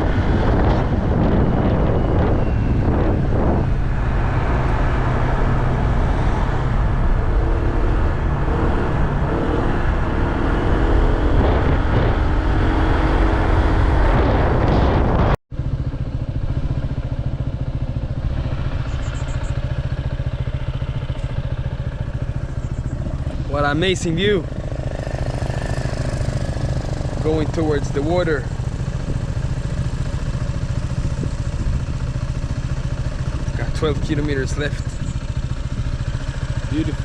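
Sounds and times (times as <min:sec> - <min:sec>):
motorbike engine running: 0:00.0 - 0:37.0
wind rumble on microphone: 0:00.0 - 0:37.0.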